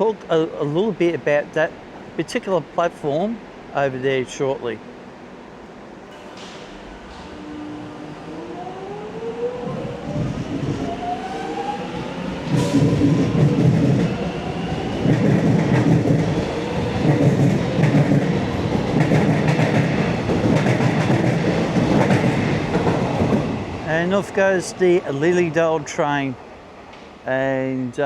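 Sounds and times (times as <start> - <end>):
train wheels clattering: 12.4 - 14.4, 15.0 - 24.4.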